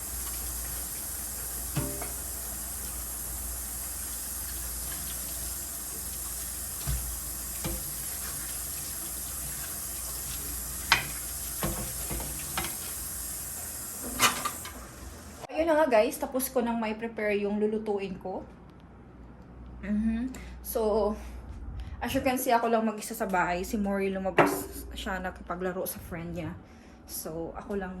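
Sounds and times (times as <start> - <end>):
fish frying in oil: 0.0 - 15.5.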